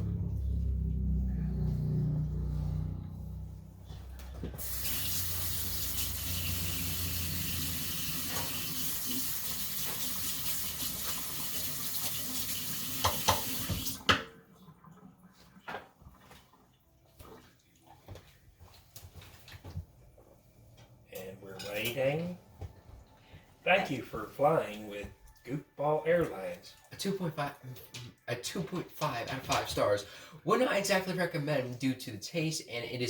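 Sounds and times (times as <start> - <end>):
water running: 4.6 - 18.7, 23.7 - 31.8.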